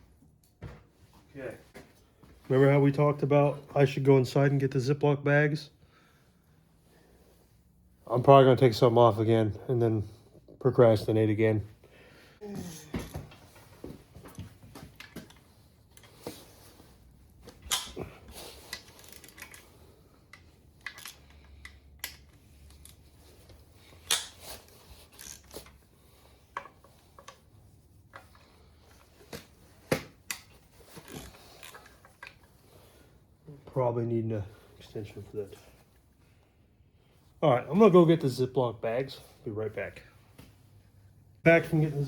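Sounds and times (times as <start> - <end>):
metal tools and parts clinking: 18.6 - 23.0.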